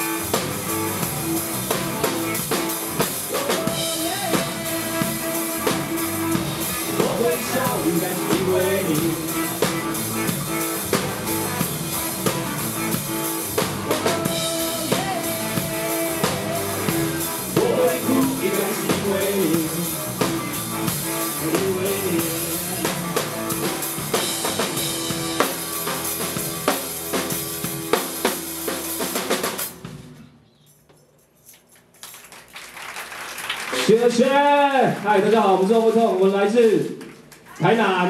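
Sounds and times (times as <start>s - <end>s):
drum kit hits: 0.0s - 30.2s
live rock band playing: 0.0s - 30.2s.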